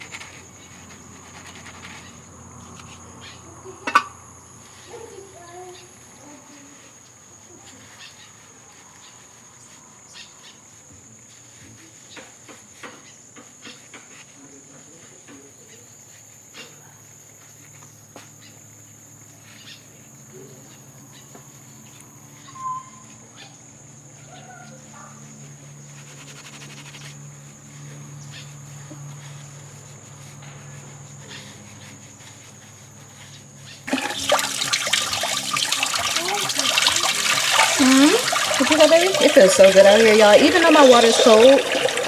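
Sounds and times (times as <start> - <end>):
crickets chirping: 33.9 - 42.0
running water hum: 33.9 - 42.0
small clicks and drips: 33.9 - 42.0.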